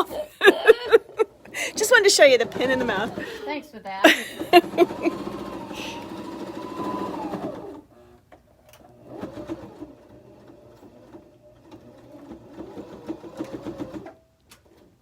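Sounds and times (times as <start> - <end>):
electric sewing machine stitching: 1.1 - 3.4, 4.1 - 15.0.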